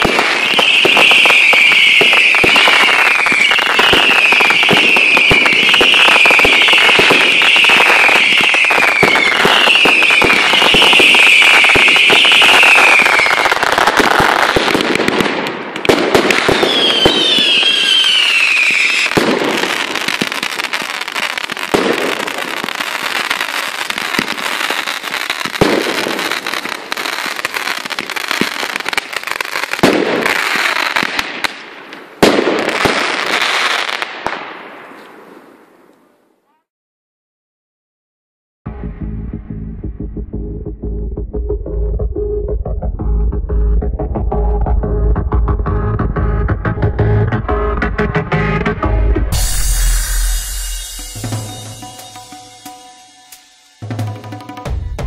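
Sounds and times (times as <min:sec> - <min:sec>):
fireworks whistling: 0:00.0 - 0:35.5, 0:46.5 - 0:55.0
fireworks bangs: 0:00.0 - 0:35.9, 0:43.9 - 0:55.0
fireworks crackling: 0:00.0 - 0:36.0, 0:45.2 - 0:55.0.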